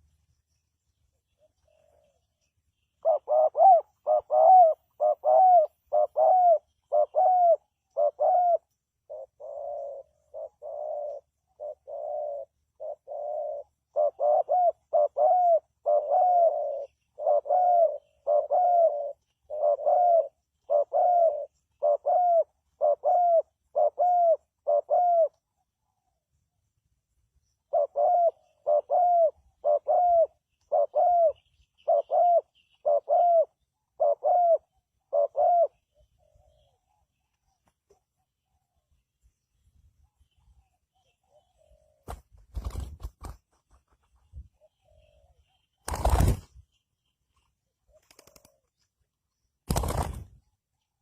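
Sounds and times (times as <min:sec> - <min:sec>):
dove cooing: 0:01.3 - 0:26.2, 0:27.4 - 0:37.6, 0:40.9 - 0:43.0, 0:47.9 - 0:48.8.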